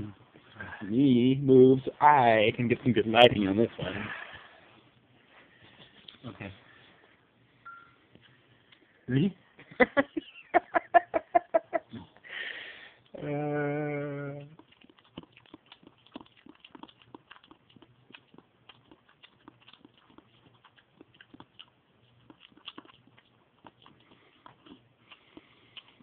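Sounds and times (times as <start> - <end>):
wet smacking and chewing: 14.4 - 26.0.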